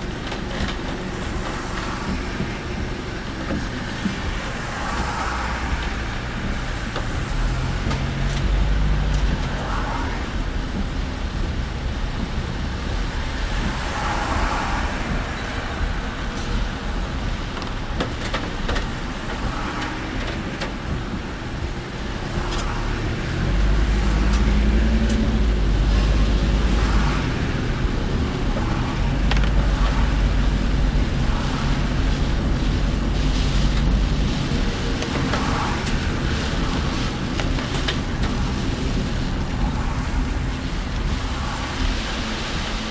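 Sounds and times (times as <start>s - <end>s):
car road and engine rumble: 0.0s - 42.9s.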